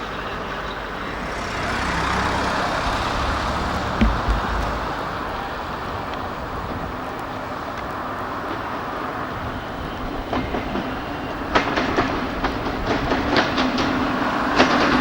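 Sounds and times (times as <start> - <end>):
freight train wheels rumbling: 0.0 - 15.0
low thumps: 2.1 - 6.3.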